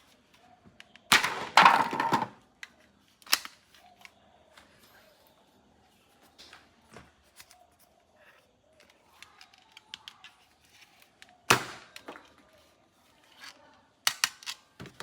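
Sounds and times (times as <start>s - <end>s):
plastic toy parts clicking: 2.6s - 4.2s, 8.7s - 12.1s, 13.2s - 14.8s
loud sharp plastic snap: 14.1s - 14.6s.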